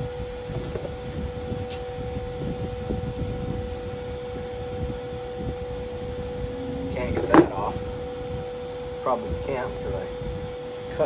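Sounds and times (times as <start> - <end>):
steady hum with pitched tones: 5.1 - 10.4.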